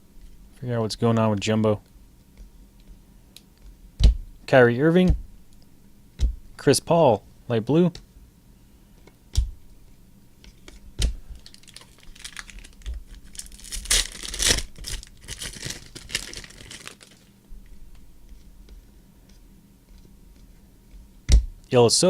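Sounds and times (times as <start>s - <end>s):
wrapper tearing and crinkling: 11.4s - 17.3s.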